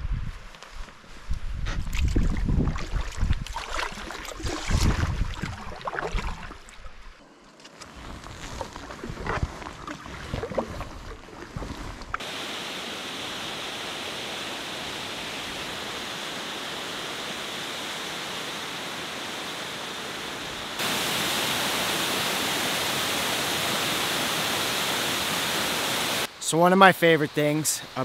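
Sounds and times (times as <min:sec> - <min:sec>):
canoe paddle splashing: 0:02.6 - 0:07.2, 0:08.0 - 0:13.6
waterfall rushing: 0:12.2 - 0:26.6.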